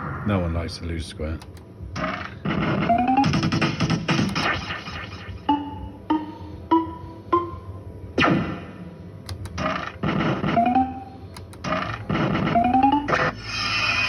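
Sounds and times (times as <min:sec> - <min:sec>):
fruit machine electronic tones: 0:02.8 - 0:04.5, 0:05.4 - 0:07.8, 0:10.4 - 0:11.2, 0:12.4 - 0:13.5.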